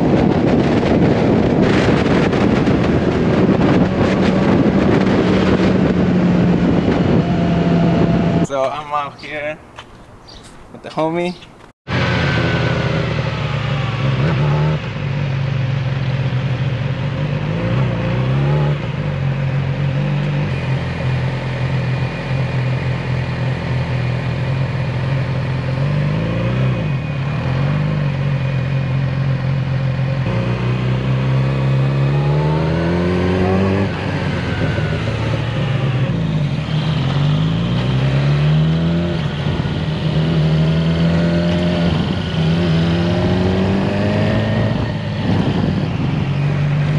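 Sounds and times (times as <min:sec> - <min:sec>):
motorcycle engine running: 0:11.9 - 0:46.9.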